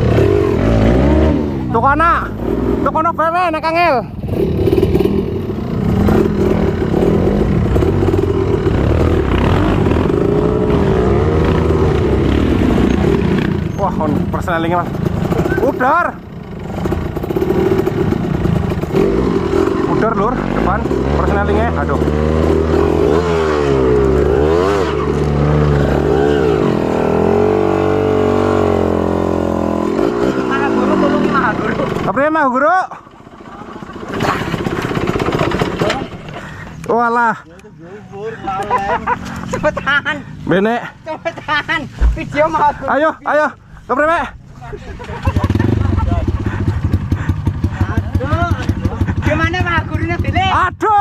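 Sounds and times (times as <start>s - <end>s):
motorcycle engine revving: 0.0s - 36.9s, 45.0s - 50.6s.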